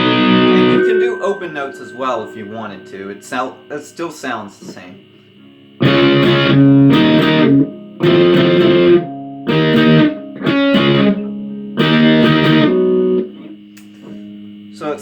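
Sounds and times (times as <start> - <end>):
guitar strumming chords: 0.0 - 4.3, 5.8 - 13.2.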